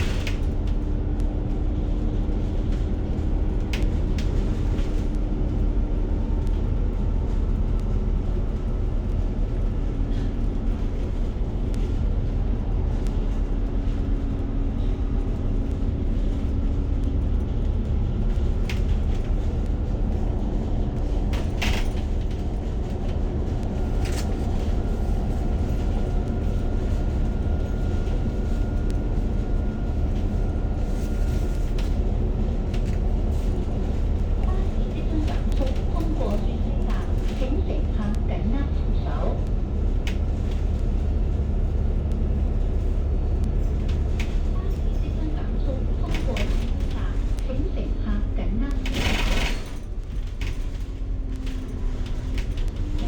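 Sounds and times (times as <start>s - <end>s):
bus engine rumble: 0.0s - 53.0s
rattles and clicks: 12.9s - 29.4s, 30.0s - 38.2s, 39.4s - 53.0s.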